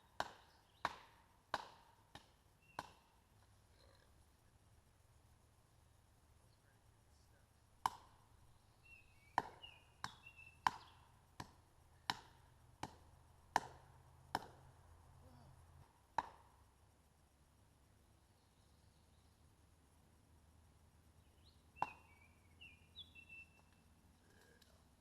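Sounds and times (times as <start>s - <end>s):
firewood being chopped: 0.1s - 3.5s, 7.8s - 14.9s, 15.8s - 16.7s, 21.8s - 22.3s.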